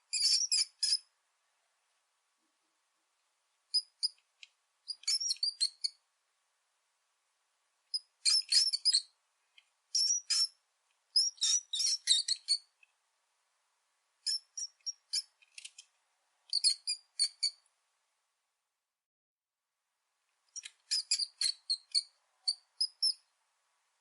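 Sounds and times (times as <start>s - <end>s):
rat squeaking: 0.0s - 1.1s, 3.7s - 4.2s, 4.9s - 6.0s, 7.9s - 9.2s, 9.9s - 12.7s, 14.2s - 15.8s, 16.5s - 17.6s, 20.5s - 23.3s.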